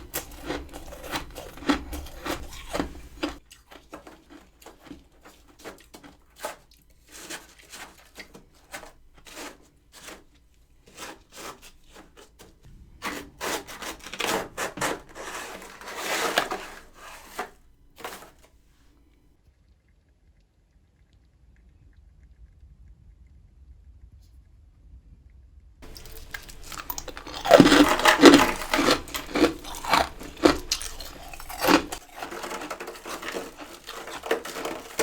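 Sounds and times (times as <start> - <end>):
freezer frost crunching and scraping: 0.0 - 18.6, 25.8 - 35.0.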